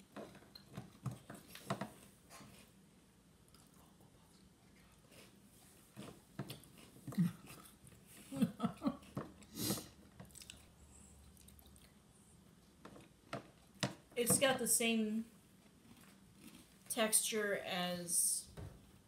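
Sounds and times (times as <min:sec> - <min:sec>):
chewing crunchy cereal: 0:03.5 - 0:08.2, 0:08.9 - 0:13.7, 0:15.5 - 0:16.9.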